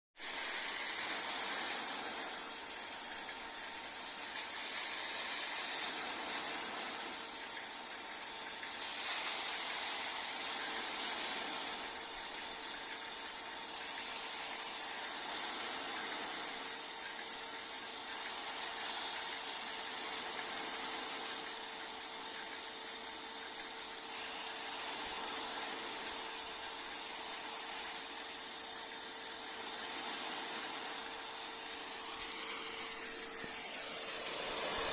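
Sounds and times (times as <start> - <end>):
faint steady hum: 0.2 - 34.9
sprinkler water jet hissing: 0.2 - 34.9.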